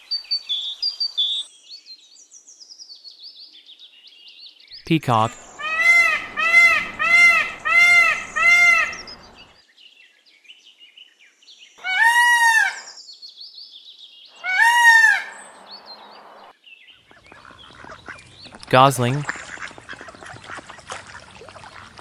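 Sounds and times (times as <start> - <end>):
peacock calling: 5.0 - 9.5, 11.8 - 13.0, 14.3 - 16.5, 17.1 - 22.0.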